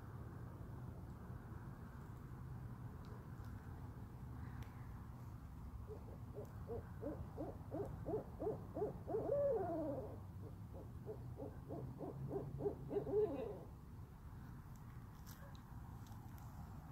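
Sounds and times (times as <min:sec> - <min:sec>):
owls hooting rapidly: 0:05.9 - 0:13.7
owl wavering descending call: 0:06.4 - 0:13.7.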